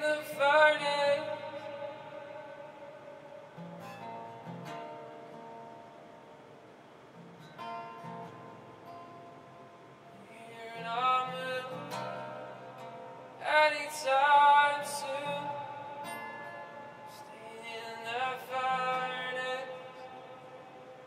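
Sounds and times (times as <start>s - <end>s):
person singing: 0.0s - 4.3s, 10.2s - 21.0s.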